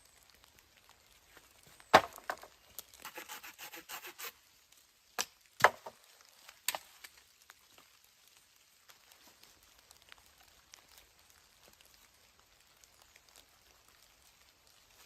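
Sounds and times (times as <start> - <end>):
knocks and cracks on wood: 1.8 - 2.9, 5.2 - 7.2
short scraping strokes: 3.0 - 4.3.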